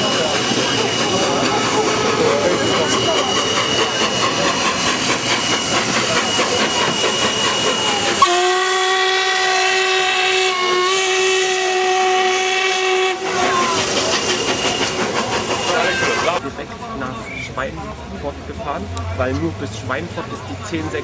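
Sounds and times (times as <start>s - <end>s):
hiss of escaping steam: 0.0s - 8.2s, 13.2s - 16.4s
steam locomotive whistle: 5.6s - 16.4s.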